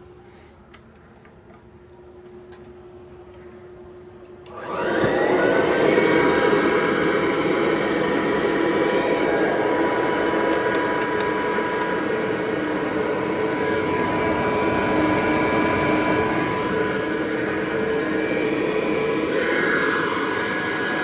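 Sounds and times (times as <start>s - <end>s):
vacuum cleaner running: 4.4s - 21.0s.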